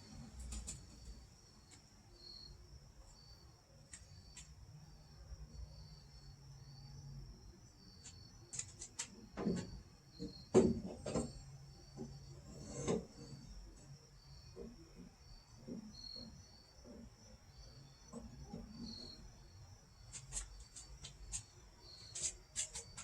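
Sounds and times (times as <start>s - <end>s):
crickets chirping: 0.0s - 23.0s
sharp knocks and clunks: 9.0s - 13.2s.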